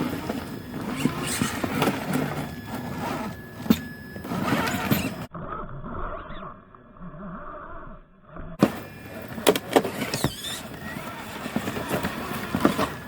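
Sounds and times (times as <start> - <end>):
electric motor whining: 0.0 - 5.3, 8.6 - 13.0.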